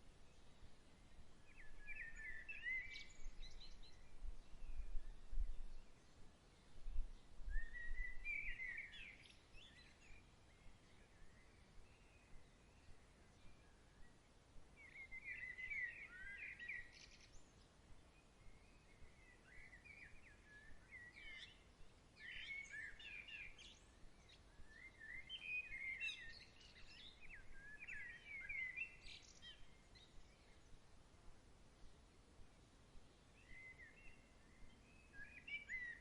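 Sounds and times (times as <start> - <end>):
faint background hiss: 0.0 - 36.0
songbird twittering: 1.4 - 6.1, 7.1 - 13.8, 14.8 - 17.6, 18.4 - 21.6, 22.2 - 30.7, 33.4 - 36.0.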